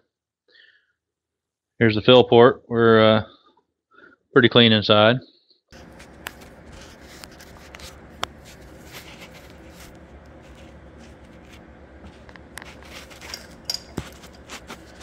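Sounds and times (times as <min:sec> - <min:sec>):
steady low hum: 0:05.8 - 0:15.0.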